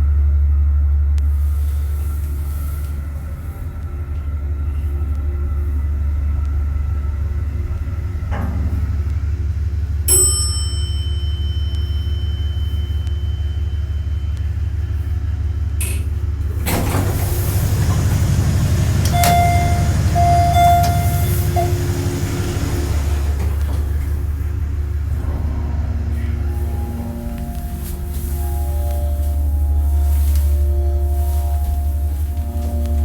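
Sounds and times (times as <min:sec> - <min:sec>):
elevator low hum: 0:00.0 - 0:33.0
elevator chime: 0:08.3 - 0:33.0
loud rush of noise: 0:24.6 - 0:31.4.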